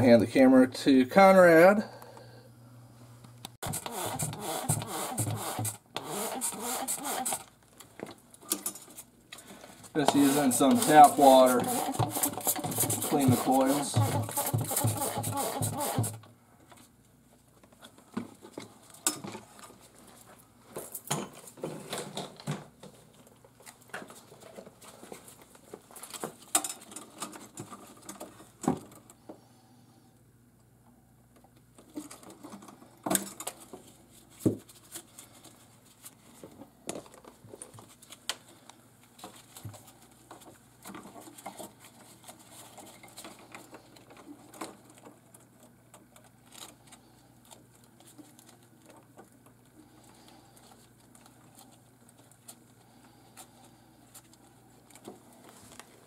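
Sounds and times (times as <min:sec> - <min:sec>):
hands clicking and tapping parts: 0:10.0 - 0:16.8.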